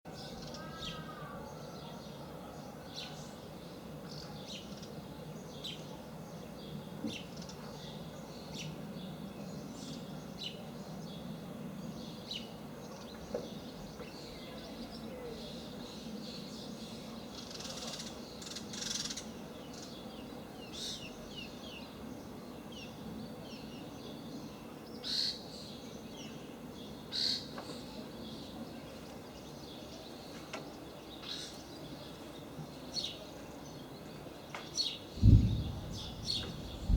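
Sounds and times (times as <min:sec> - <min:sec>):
small birds chirping: 0:00.1 - 0:36.9
low rumbling drone: 0:35.2 - 0:36.9.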